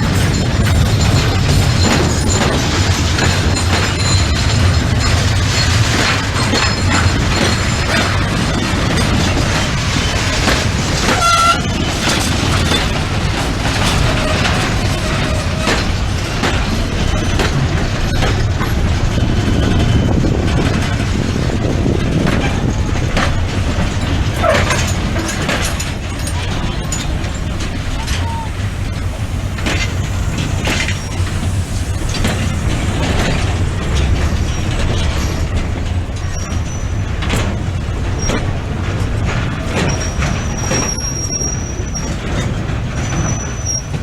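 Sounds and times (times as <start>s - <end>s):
train wheels rumbling and clicking: 0.0s - 44.0s
high wheel squeal: 11.1s - 12.9s, 27.9s - 37.2s, 39.8s - 44.0s.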